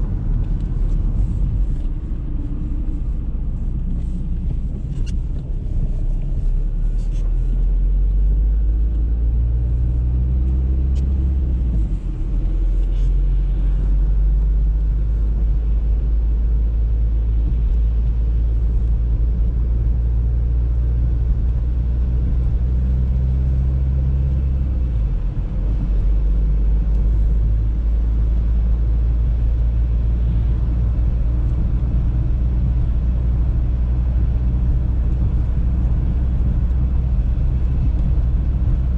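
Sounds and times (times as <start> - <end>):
car engine rumble: 0.0 - 38.9
road noise: 0.0 - 38.9.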